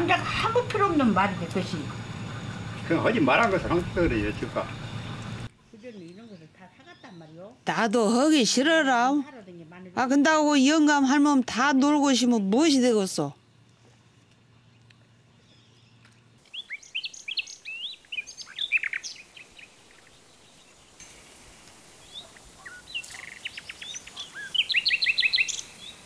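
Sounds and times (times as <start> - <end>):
birds chirping and calling: 0.0 - 7.6, 15.4 - 20.5, 22.0 - 26.0.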